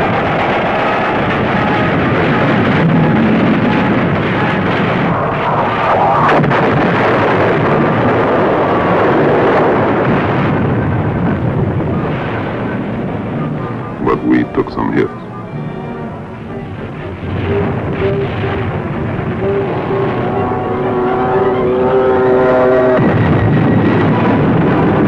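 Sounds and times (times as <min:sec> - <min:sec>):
explosions: 0:00.1 - 0:13.4.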